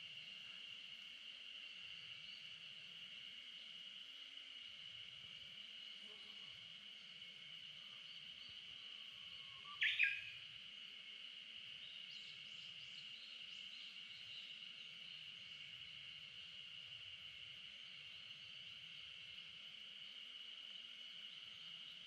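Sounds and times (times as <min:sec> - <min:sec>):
faint bird chirps: 0:09.2 - 0:10.4, 0:11.8 - 0:15.3
bird calls: 0:09.6 - 0:10.4.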